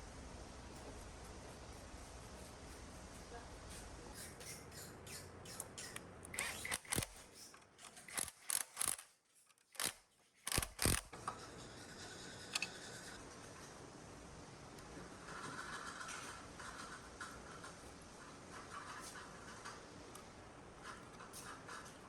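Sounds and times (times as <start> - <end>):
sharp mechanical clicks and taps: 5.5 - 11.2.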